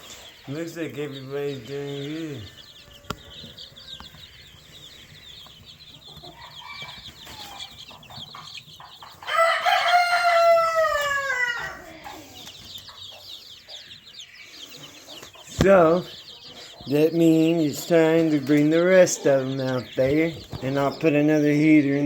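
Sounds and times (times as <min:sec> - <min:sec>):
chicks peeping: 0:00.0 - 0:22.0
rooster crowing: 0:02.4 - 0:05.4, 0:06.0 - 0:08.6, 0:09.2 - 0:12.7.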